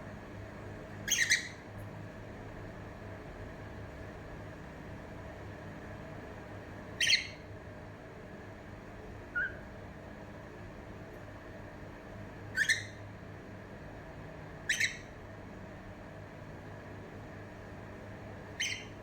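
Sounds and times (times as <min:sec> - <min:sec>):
low room hum: 0:00.0 - 0:19.0
cockatiel whistled calls: 0:01.0 - 0:01.6, 0:07.0 - 0:07.4, 0:09.3 - 0:09.6, 0:12.5 - 0:13.0, 0:14.7 - 0:15.1, 0:18.6 - 0:19.0.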